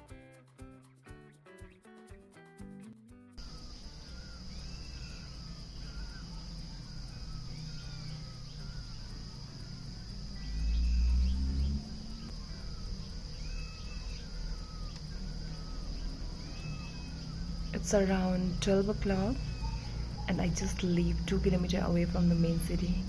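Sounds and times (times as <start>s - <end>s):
birds chirping: 3.4s - 23.0s
high-pitched insect drone: 3.4s - 23.0s
loud low rumble: 3.5s - 23.0s.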